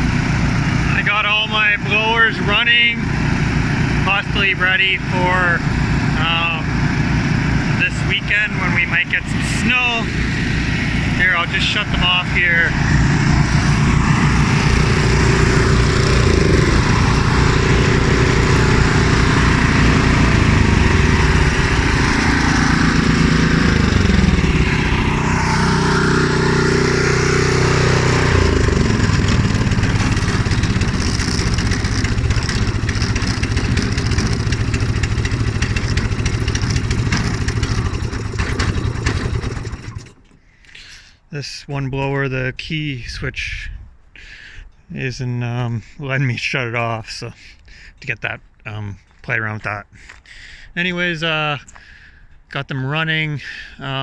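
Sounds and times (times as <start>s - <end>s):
snow blower engines running: 0.0s - 41.1s.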